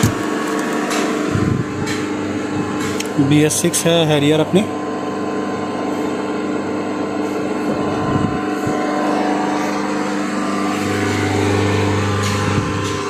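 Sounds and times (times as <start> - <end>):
deeper hum: 0.0 - 13.0
diesel engine running: 0.0 - 13.0.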